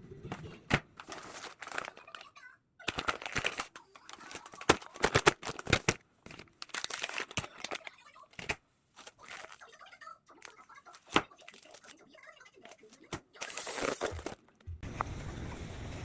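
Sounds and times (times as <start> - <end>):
packaging crinkling and rustling: 0.9 - 9.7, 10.4 - 12.0, 13.4 - 14.4.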